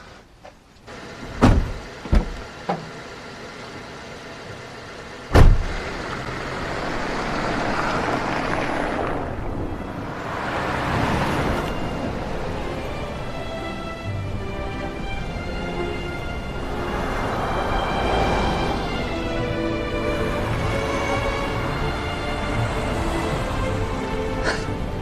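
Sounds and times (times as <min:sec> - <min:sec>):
car driving: 0:00.0 - 0:25.0
car doors thumping shut: 0:01.2 - 0:02.9, 0:05.3 - 0:05.8.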